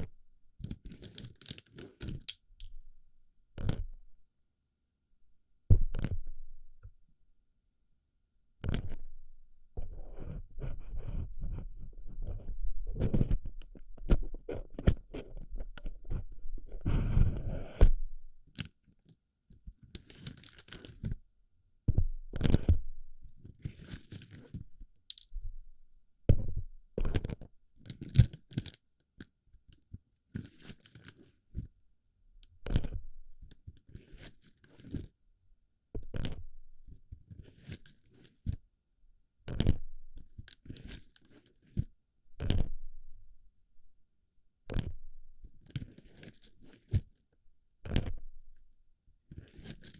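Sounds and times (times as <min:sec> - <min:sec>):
plastic pellets crunching and clicking: 0:25.1 - 0:25.3.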